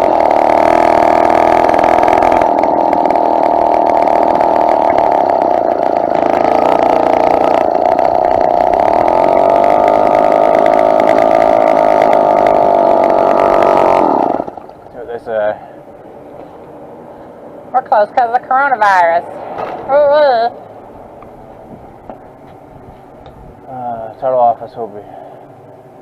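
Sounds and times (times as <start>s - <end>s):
small two-stroke engine running: 0.0s - 15.0s.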